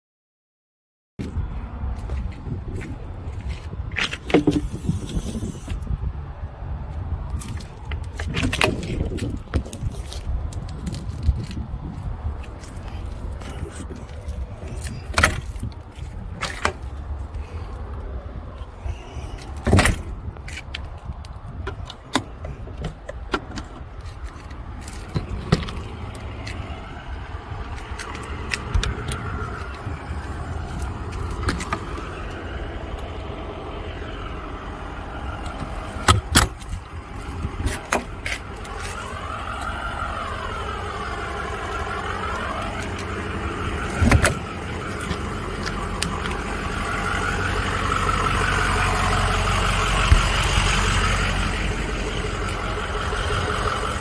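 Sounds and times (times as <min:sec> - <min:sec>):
motorhome engine rumble: 0:01.2 - 0:54.0.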